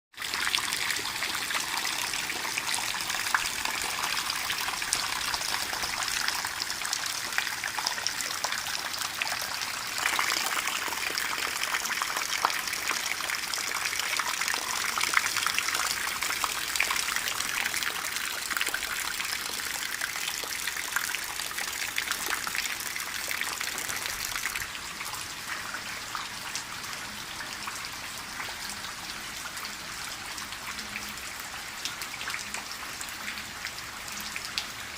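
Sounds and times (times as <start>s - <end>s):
raindrop splashes: 0.2s - 34.9s.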